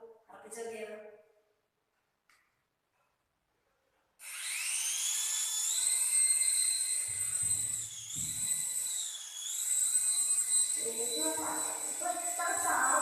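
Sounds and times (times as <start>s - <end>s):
toy helicopter motor whine: 4.2s - 13.0s.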